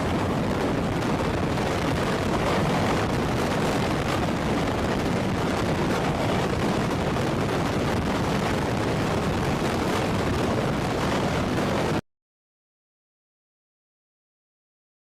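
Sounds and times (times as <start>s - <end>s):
helicopter rotor and turbine rumble: 0.0s - 12.0s.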